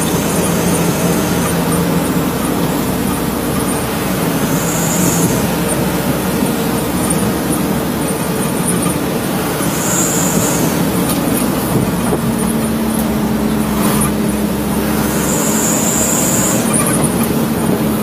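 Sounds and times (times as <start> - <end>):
road noise: 0.0 - 18.0
truck engine drone: 0.0 - 18.0
short high hisses: 4.2 - 5.7, 9.7 - 10.9, 14.9 - 16.8.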